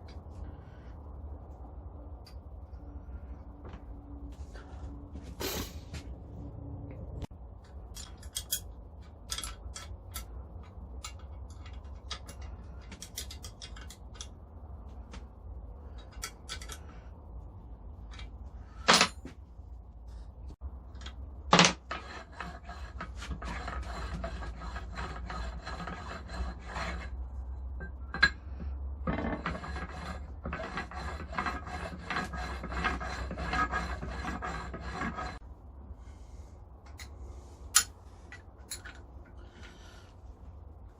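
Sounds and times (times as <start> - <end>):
rasping rubbing: 21.9 - 27.3, 29.1 - 35.4.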